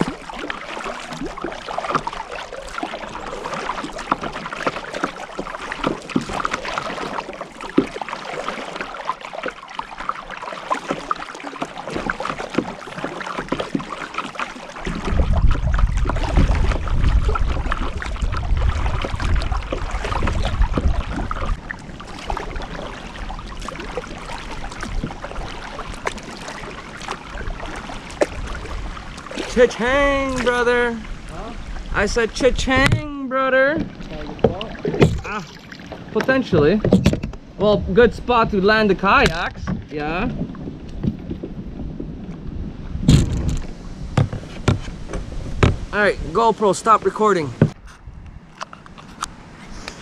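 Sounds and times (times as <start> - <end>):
paddle splashing water: 0.0 - 50.0
strong low rumble: 37.4 - 40.8.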